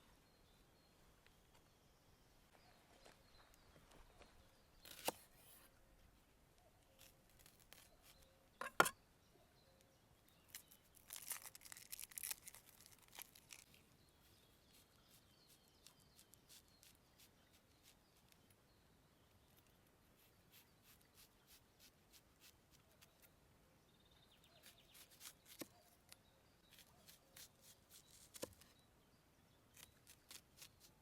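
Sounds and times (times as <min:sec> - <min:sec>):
faint birdsong: 0:00.0 - 0:31.0
rustling and tearing: 0:07.0 - 0:08.0, 0:10.5 - 0:13.8, 0:26.7 - 0:28.7.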